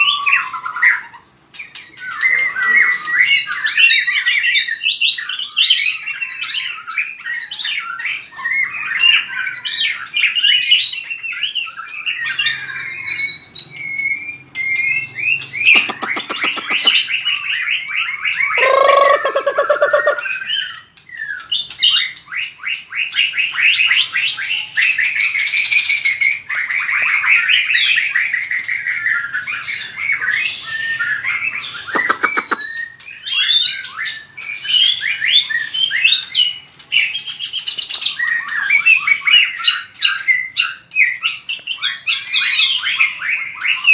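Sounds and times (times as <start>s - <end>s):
bird singing whistled phrases: 12.2s - 17.2s, 29.2s - 36.5s.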